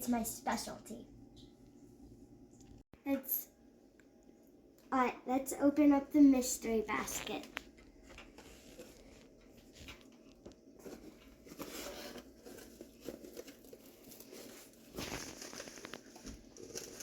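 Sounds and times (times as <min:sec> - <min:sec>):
packaging crinkling and rustling: 0:07.0 - 0:17.0.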